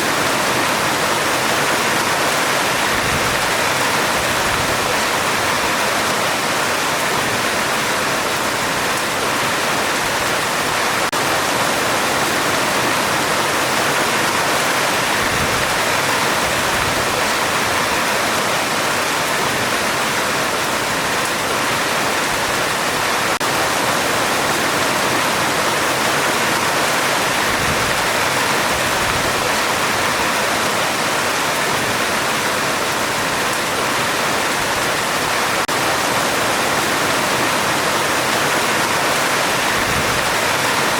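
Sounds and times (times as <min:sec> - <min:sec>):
heavy rain on a metal roof: 0:00.0 - 0:40.9.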